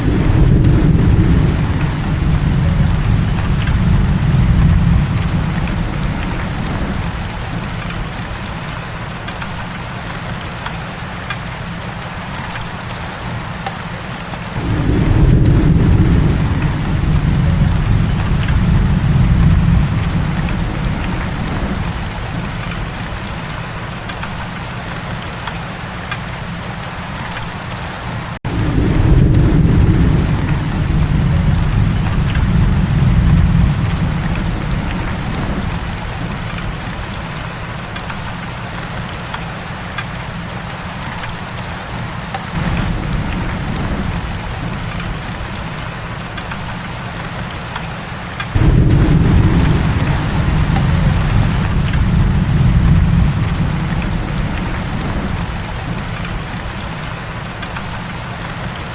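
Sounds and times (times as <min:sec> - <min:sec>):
low thunder rolling: 0:00.0 - 0:08.3, 0:14.6 - 0:23.4, 0:28.4 - 0:37.6, 0:42.6 - 0:46.8, 0:48.5 - 0:58.2
heavy rain falling: 0:00.0 - 0:58.9.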